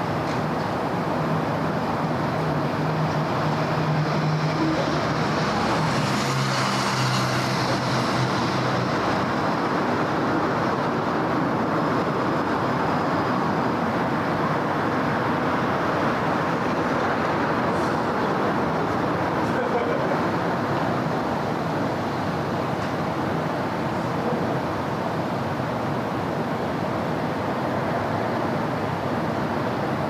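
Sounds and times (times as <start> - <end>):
low engine drone: 0.0 - 14.6
city traffic driving past: 0.0 - 30.0
vehicle passing: 2.4 - 11.3.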